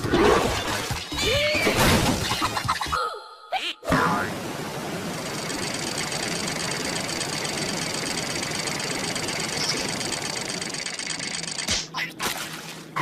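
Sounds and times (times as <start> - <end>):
noisy rumble: 4.0 - 11.8.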